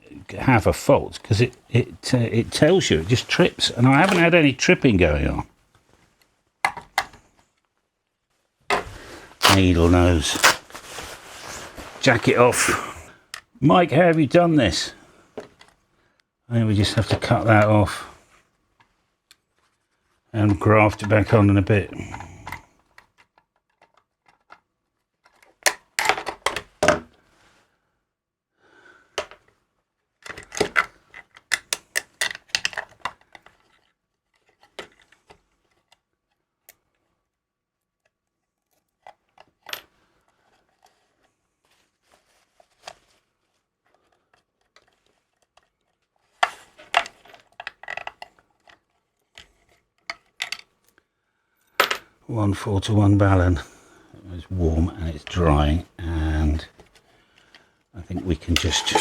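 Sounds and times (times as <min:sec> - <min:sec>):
metal parts clattering: 0:58.2 - 0:59.0.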